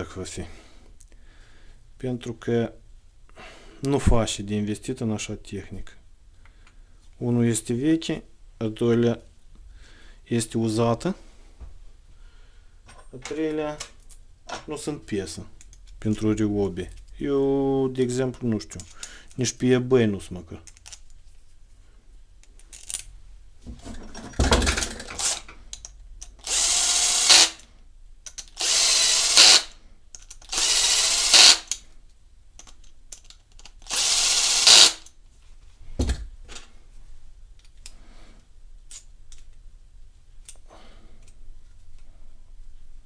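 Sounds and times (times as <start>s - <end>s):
power drill driving screws: 25.1s - 25.4s, 26.4s - 27.7s, 28.6s - 29.7s, 30.5s - 31.8s, 33.8s - 35.0s.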